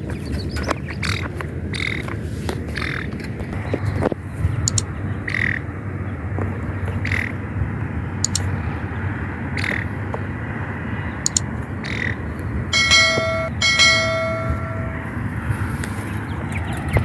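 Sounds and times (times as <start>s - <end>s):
bird calls: 0.0s - 5.7s, 6.6s - 7.4s, 8.2s - 10.0s, 11.0s - 15.1s
steady background noise: 0.0s - 17.0s
metal bell ringing: 12.8s - 15.2s.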